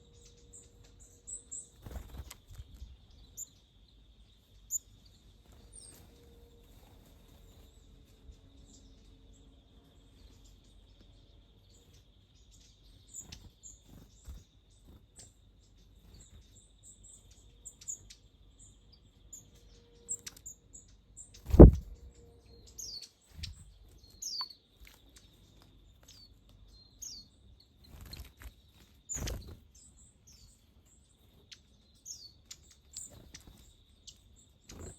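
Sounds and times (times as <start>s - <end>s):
small birds chirping: 0.0s - 34.9s
low thumps: 21.5s - 22.0s.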